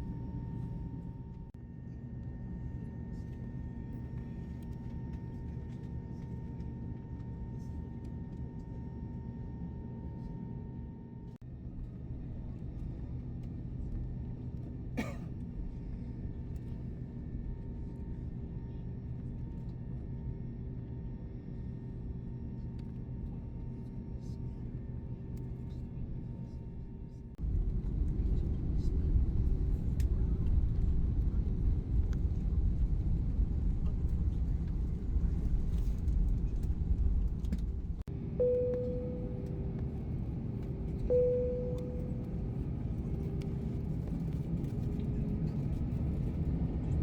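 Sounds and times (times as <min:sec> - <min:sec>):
jet engine cabin rumble: 0:00.0 - 0:10.8, 0:11.6 - 0:47.0
faint whine: 0:20.5 - 0:47.0.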